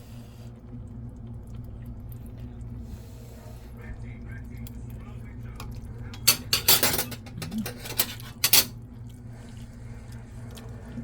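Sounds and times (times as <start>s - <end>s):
utensil scraping cookware: 6.2s - 8.7s.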